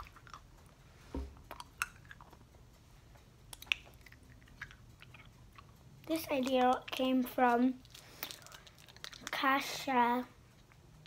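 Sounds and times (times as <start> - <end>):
chewing candy: 0.0 - 0.8, 1.4 - 2.5, 3.5 - 7.0, 7.8 - 9.4
mouth clicks and smacks: 1.4 - 2.5, 3.5 - 5.8.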